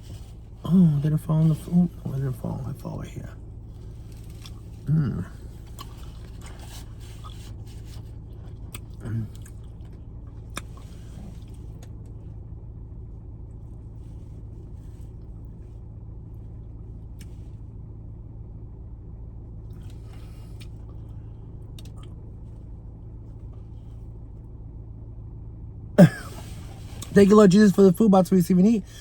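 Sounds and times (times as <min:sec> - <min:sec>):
steady low hum: 0:00.0 - 0:29.0
faint rustles: 0:03.6 - 0:08.7.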